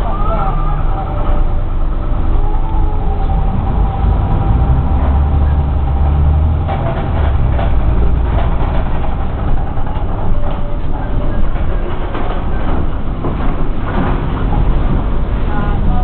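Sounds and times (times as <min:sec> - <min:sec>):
bus engine rumbling: 0:00.0 - 0:16.0
knocks and rattles: 0:04.9 - 0:15.9.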